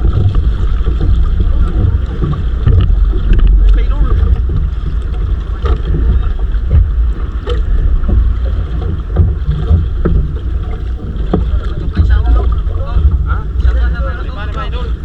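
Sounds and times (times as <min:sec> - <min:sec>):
water against hull: 0:00.0 - 0:15.0
wind buffeting microphone: 0:00.0 - 0:15.0.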